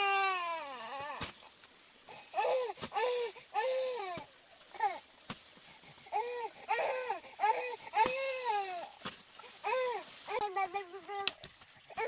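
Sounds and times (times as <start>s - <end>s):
young child crying: 0.0s - 1.3s, 9.6s - 11.3s.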